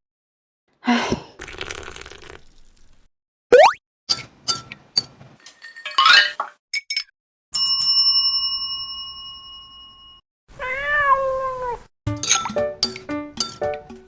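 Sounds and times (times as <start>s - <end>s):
cat meowing: 10.5s - 11.8s.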